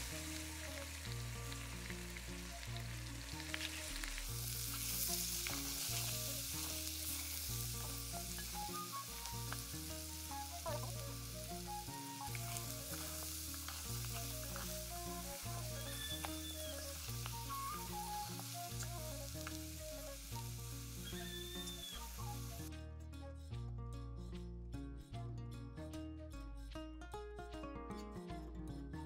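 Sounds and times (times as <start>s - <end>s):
potatoes sizzling in hot oil: 0.0s - 22.7s
wooden spoon stirring: 12.2s - 19.6s.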